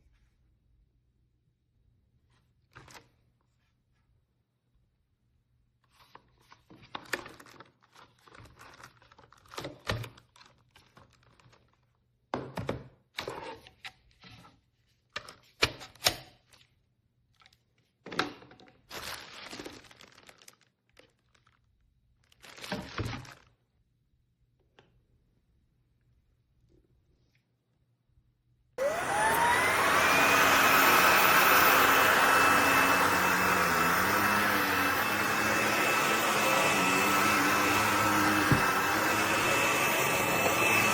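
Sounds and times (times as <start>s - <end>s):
crinkling and rustling: 5.9s - 12.0s, 16.4s - 23.6s.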